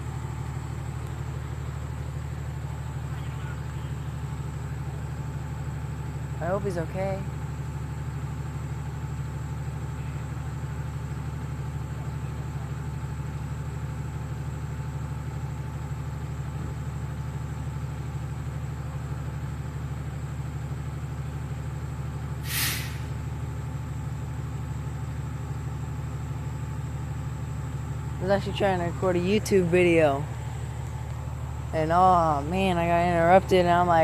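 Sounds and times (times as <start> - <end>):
diesel engine idling: 0.0 - 34.0
air brake hiss: 22.4 - 23.2.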